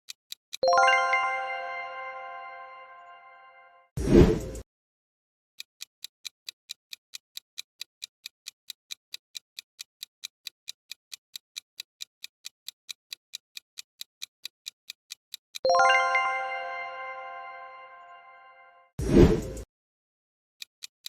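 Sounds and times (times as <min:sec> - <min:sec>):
clock-like timer ticking: 0:00.1 - 0:01.2, 0:04.0 - 0:04.6, 0:05.6 - 0:16.2.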